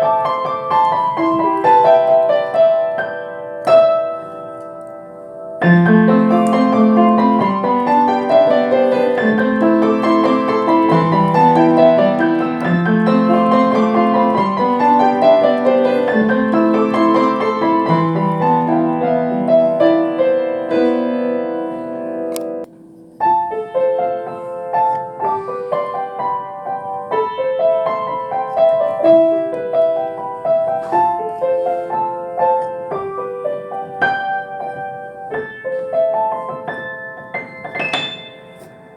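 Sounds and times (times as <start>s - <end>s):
solo piano playing: 0.0s - 38.9s.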